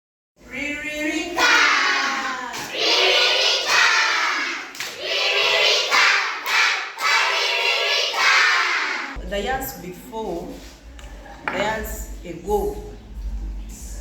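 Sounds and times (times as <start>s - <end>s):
children chanting: 1.4s - 9.2s.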